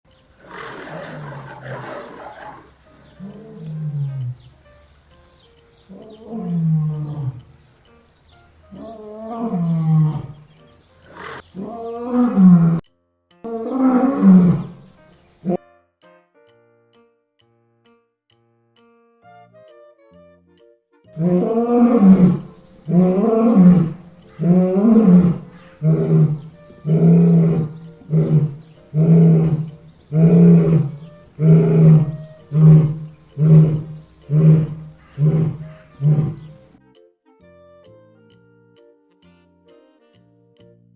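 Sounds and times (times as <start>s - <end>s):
faint music: 0.1s - 17.0s, 19.4s - 40.9s
lion roaring: 0.4s - 4.4s, 5.9s - 7.4s, 8.7s - 10.5s, 11.1s - 12.8s, 13.5s - 15.6s, 21.2s - 36.7s.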